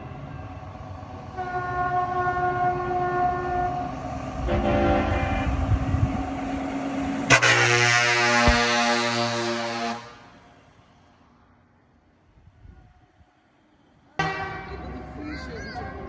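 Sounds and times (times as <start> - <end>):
diesel truck engines rumbling: 0.0 - 16.0
truck air horn blasts: 1.4 - 3.7, 4.4 - 6.0, 7.3 - 10.5.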